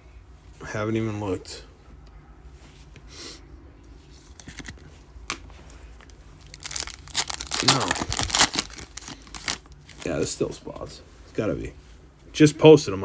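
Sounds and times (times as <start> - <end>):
foil card pack tearing and crinkling: 6.4 - 10.2.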